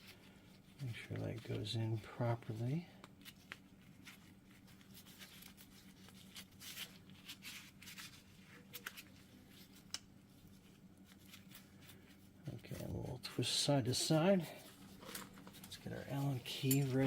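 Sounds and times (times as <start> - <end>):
small clicks and rubbing: 3.0 - 12.0.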